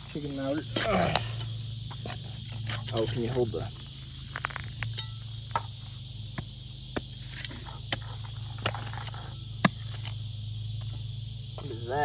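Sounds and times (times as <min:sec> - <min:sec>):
digging in sand: 0:00.6 - 0:05.3, 0:06.3 - 0:11.1.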